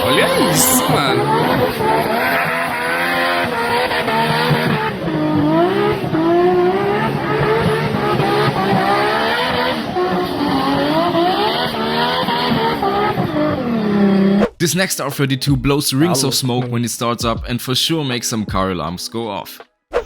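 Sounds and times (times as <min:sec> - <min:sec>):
car engine accelerating: 0:00.0 - 0:14.4.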